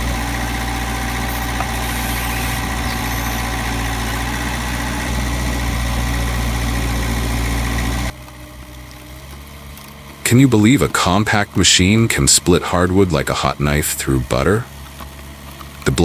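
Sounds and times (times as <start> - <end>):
low hum: 0.0 - 8.2
heavy machine engine running: 0.0 - 12.5.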